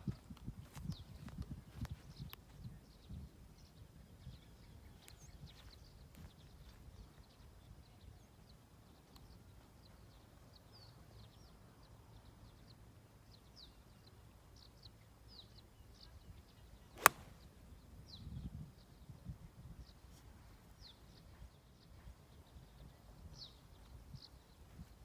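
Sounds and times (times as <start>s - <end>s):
small birds chirping: 15.4s - 17.5s
golf club striking ball: 17.0s - 17.4s.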